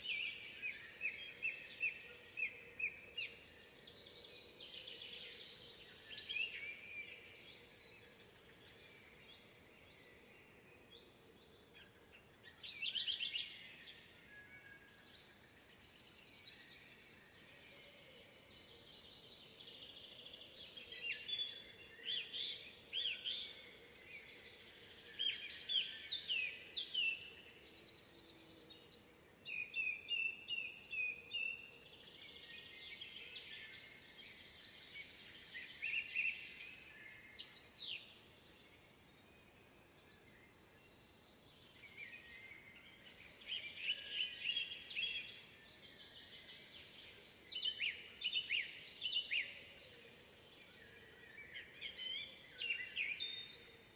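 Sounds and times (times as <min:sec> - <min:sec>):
birds chirping and singing: 0:39.4 - 0:53.9.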